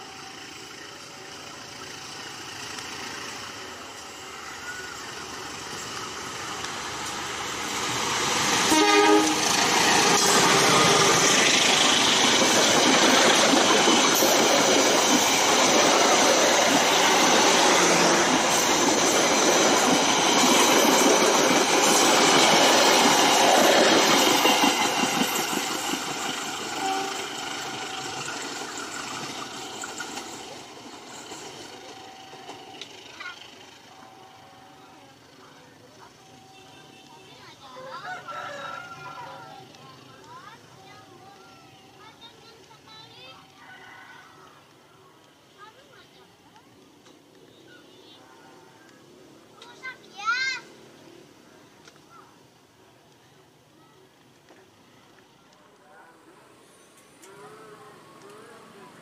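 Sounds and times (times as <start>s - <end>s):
train wheels running on rails: 0.0s - 59.0s
train horn toot: 8.6s - 10.0s, 26.7s - 27.4s.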